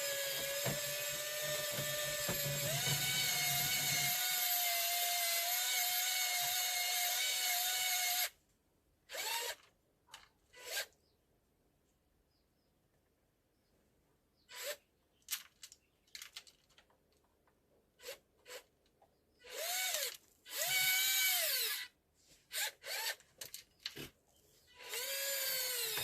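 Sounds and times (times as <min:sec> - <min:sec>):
small electric motor whining: 0:00.0 - 0:08.3, 0:19.4 - 0:21.9, 0:24.8 - 0:26.0.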